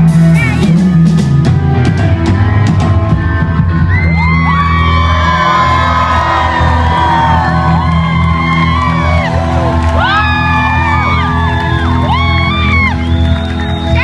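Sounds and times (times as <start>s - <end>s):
fans screaming and whooping: 3.6s - 14.0s.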